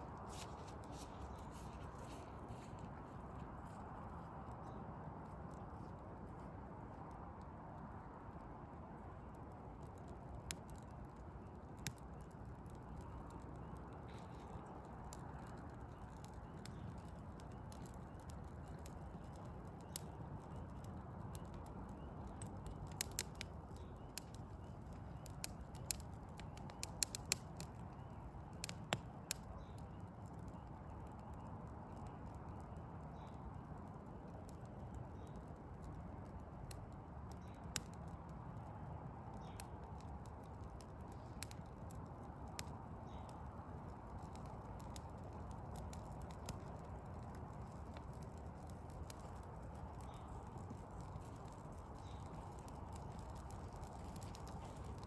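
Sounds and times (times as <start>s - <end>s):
low fire rumble: 0.0s - 55.0s
wood fire crackling: 0.0s - 55.0s.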